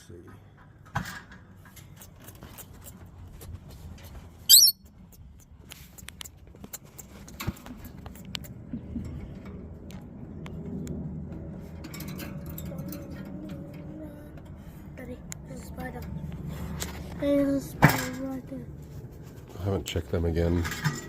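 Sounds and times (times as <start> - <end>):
parrot squawking: 4.5 - 4.8.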